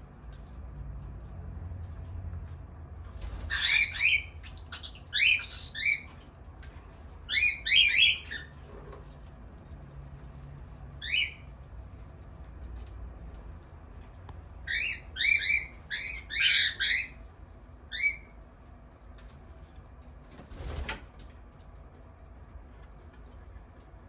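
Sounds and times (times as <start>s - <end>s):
cockatiel calling: 3.4s - 6.1s, 7.3s - 8.9s, 11.0s - 11.5s, 14.7s - 17.2s, 17.9s - 18.3s.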